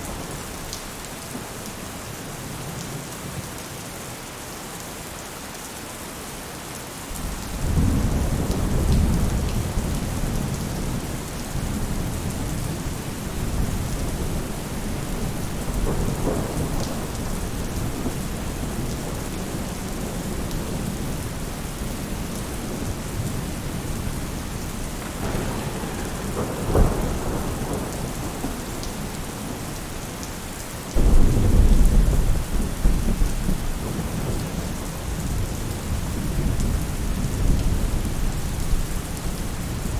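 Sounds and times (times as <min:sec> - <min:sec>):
rain on a roof: 0:00.0 - 0:39.9
thunder rumbling: 0:07.1 - 0:30.3, 0:30.9 - 0:38.9
loud thunder peal: 0:25.0 - 0:29.7, 0:31.0 - 0:34.3.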